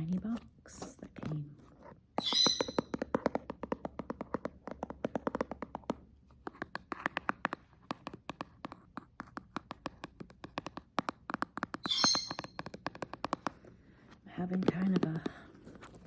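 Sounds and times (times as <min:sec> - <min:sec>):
hands handling cardboard box: 0:12.5 - 0:16.0.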